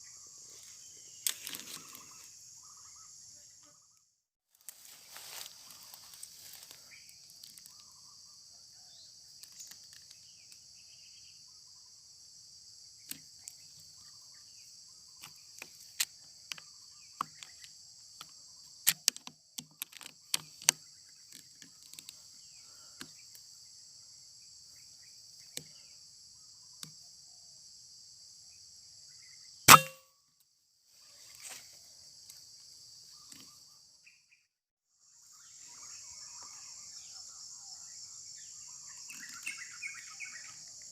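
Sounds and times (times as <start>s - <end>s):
insects chirring: 0.0s - 34.4s, 35.0s - 40.9s
rifle shot: 29.7s - 30.0s.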